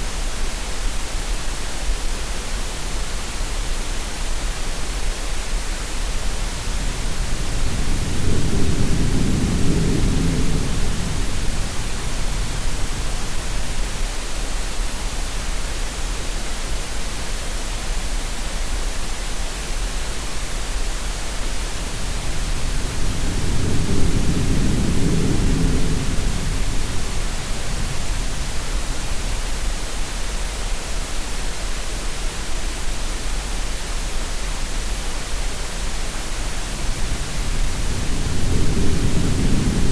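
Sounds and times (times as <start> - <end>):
steady green noise hiss: 0.0 - 39.9
low swell of sea waves: 36.2 - 39.9.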